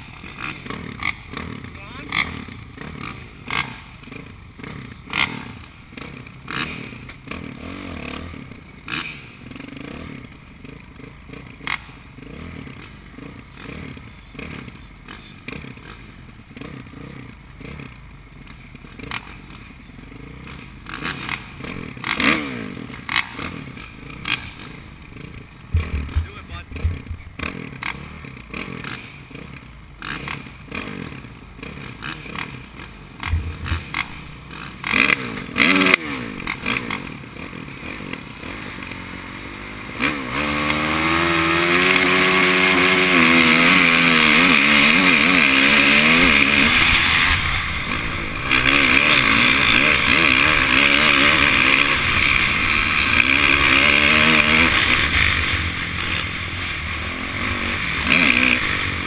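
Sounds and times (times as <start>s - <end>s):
motocross bike engines revving: 0.0s - 59.0s
engine knocks: 25.7s - 27.6s, 33.2s - 34.2s.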